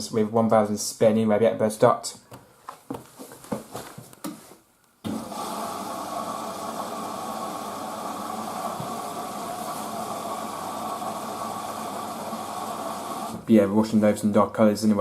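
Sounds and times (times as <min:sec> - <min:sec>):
water rushing into washing machine: 0:05.1 - 0:13.4.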